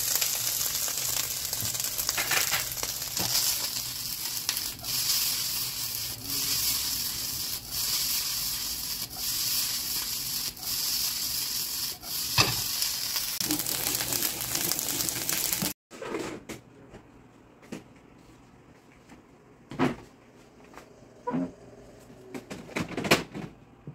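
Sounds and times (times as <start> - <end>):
rice sizzling in a wok: 0.0 - 15.8.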